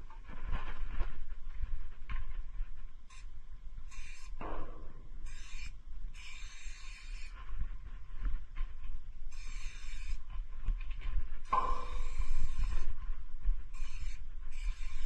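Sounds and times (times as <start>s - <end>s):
marker scratching: 3.9s - 4.3s, 9.3s - 10.2s, 13.8s - 15.0s.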